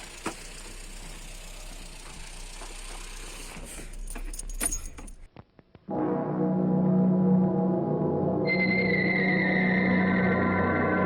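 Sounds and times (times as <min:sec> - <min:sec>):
car engine idling: 0:00.0 - 0:05.3
keys jangling and clicking: 0:03.7 - 0:05.3.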